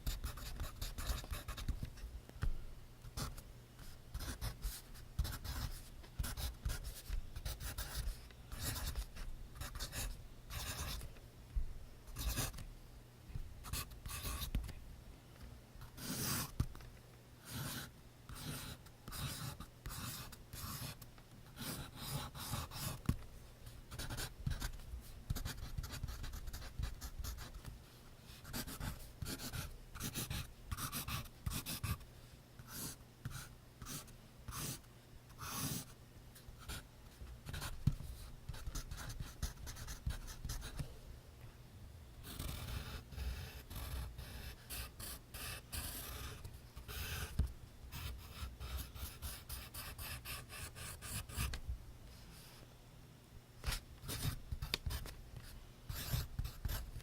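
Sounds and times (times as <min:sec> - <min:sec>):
pencil scratching on paper: 0:00.0 - 0:01.7, 0:04.1 - 0:11.0, 0:15.9 - 0:16.5, 0:17.4 - 0:21.0, 0:21.6 - 0:23.0, 0:23.9 - 0:24.7, 0:25.3 - 0:27.6, 0:28.4 - 0:32.0, 0:32.7 - 0:34.8, 0:35.4 - 0:35.9, 0:37.4 - 0:40.8, 0:42.2 - 0:51.5, 0:53.6 - 0:55.1, 0:55.9 - 0:57.0.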